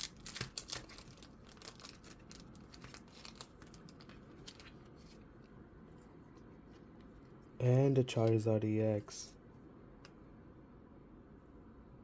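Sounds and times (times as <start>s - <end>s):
plastic card sleeve crinkling: 0.0s - 5.5s.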